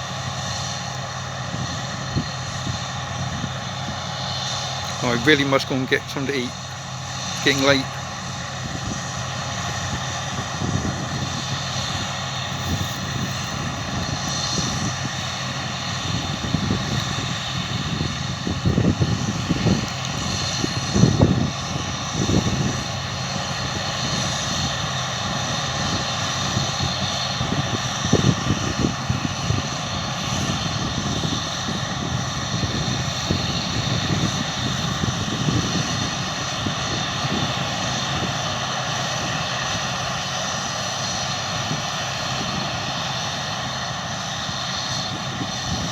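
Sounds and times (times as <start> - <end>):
harvest machinery engines droning: 0.0 - 45.9.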